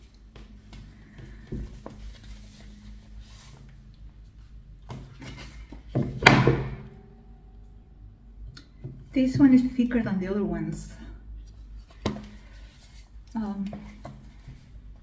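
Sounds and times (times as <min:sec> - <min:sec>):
hard object knocking down: 0:06.0 - 0:07.0.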